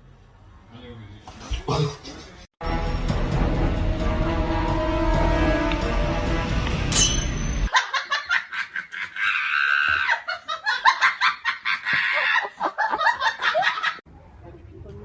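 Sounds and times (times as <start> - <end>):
person laughing hard: 7.7 - 14.0.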